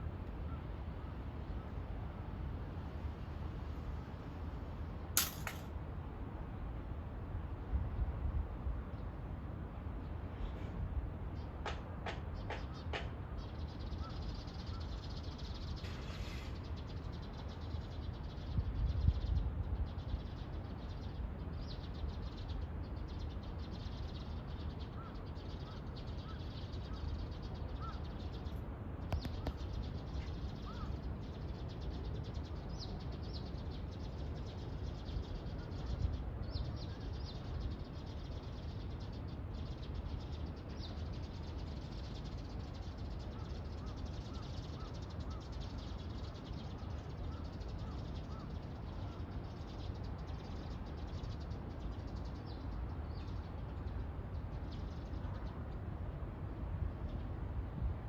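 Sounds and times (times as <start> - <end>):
birds chirping: 20.1 - 55.7.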